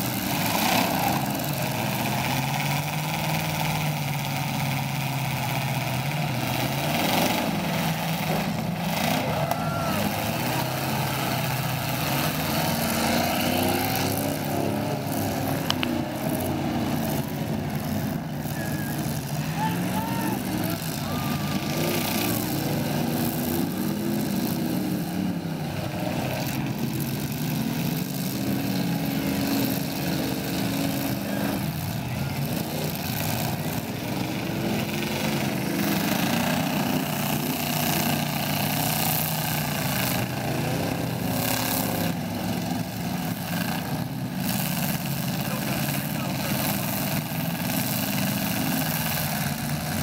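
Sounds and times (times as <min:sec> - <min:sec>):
car engines revving: 0:00.0 - 0:50.0.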